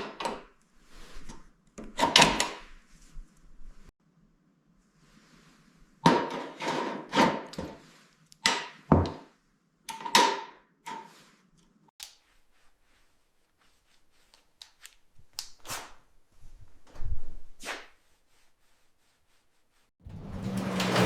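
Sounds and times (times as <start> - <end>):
sharp knocks and clanks: 20.0 - 21.0.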